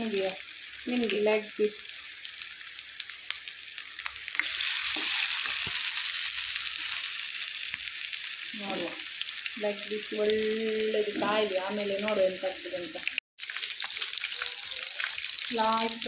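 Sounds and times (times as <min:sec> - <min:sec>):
chicken sizzling in hot oil: 0:00.0 - 0:16.0
person speaking: 0:08.6 - 0:09.0.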